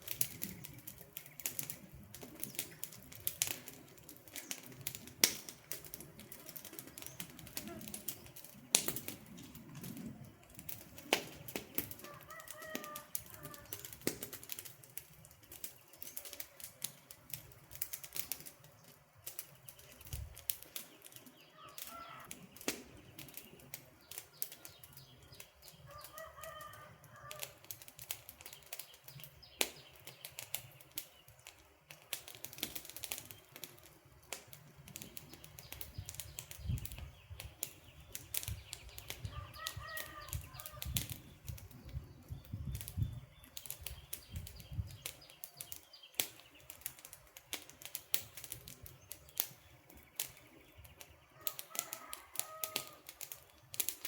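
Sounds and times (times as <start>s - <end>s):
wood fire crackling: 0.0s - 54.0s
distant bird calling: 11.0s - 14.6s, 20.6s - 27.8s, 35.0s - 46.9s.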